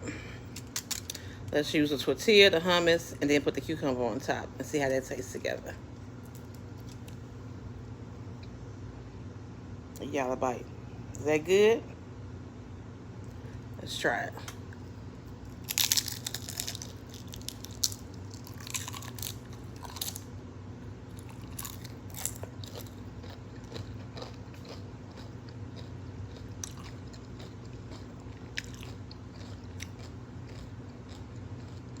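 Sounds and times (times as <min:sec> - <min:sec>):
chewing a wrap: 0:15.3 - 0:20.3, 0:21.1 - 0:32.0
cucumber crunching: 0:15.4 - 0:20.3, 0:21.1 - 0:32.0.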